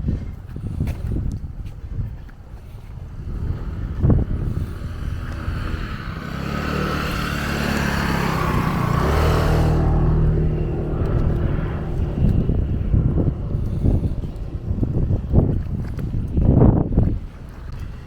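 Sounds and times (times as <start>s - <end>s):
vehicle driving past: 3.2s - 15.4s.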